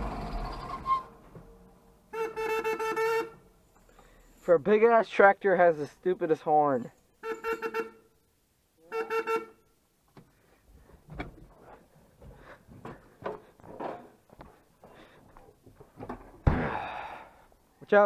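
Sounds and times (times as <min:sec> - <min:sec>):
tractor horn toot: 0:02.1 - 0:03.4, 0:07.2 - 0:08.1, 0:08.8 - 0:09.7.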